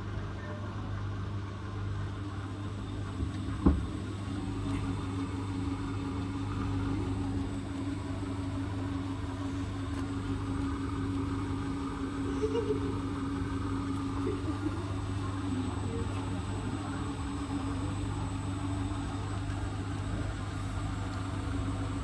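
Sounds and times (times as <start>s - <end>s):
washing machine humming: 0.0s - 22.0s
steady motor tone: 2.3s - 22.0s
washing machine knock: 3.2s - 4.0s.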